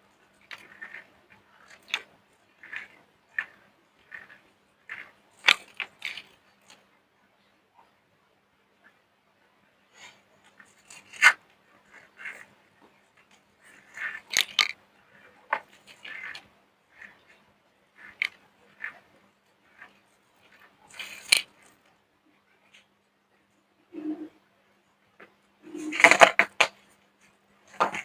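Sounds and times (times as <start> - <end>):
soap crunching and crackling: 0.4 - 6.8, 13.3 - 17.4.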